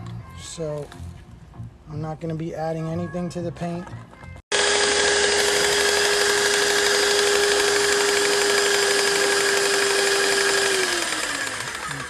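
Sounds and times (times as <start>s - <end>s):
electric motor whine: 4.5s - 12.0s.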